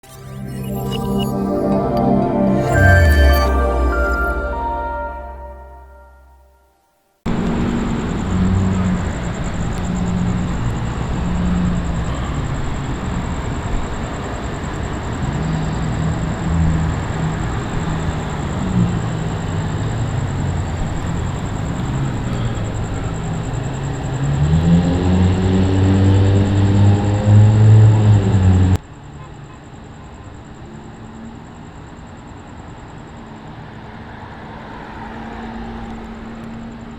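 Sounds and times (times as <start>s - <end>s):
road noise: 7.3s - 29.1s, 33.1s - 36.9s.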